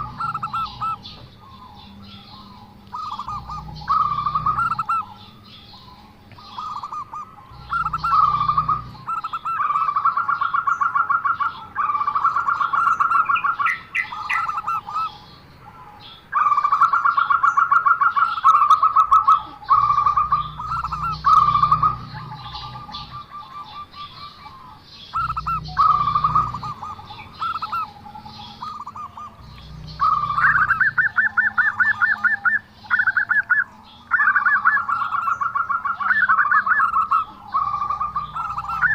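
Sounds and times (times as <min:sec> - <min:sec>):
dove pulsed cooing: 0:00.0 - 0:38.9.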